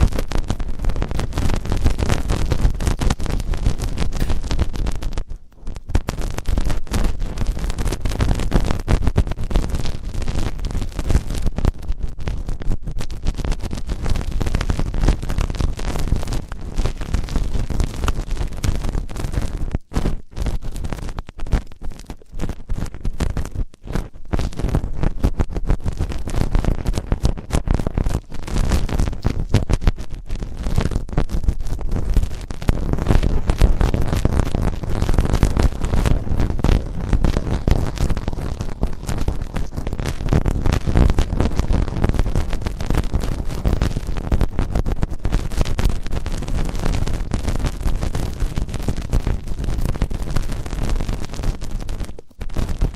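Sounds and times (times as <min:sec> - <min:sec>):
ear cleaning scratching: 0:35.1 - 0:43.9.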